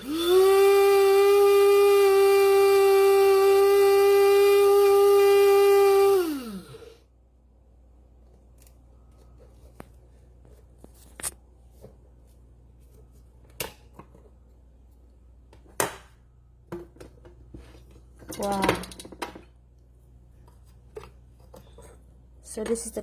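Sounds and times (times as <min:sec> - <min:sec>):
coffee grinder motor spinning down: 0:00.0 - 0:07.0.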